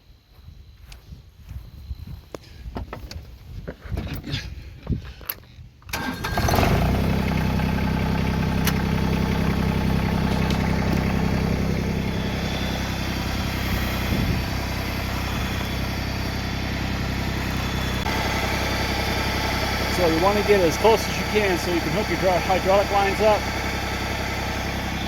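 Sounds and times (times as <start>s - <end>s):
tractor engine starting and idling: 5.9s - 25.0s.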